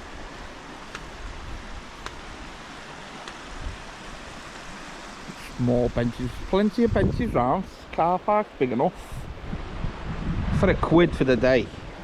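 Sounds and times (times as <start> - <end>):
river rushing: 0.0 - 10.6
faint ticks: 2.0 - 2.2.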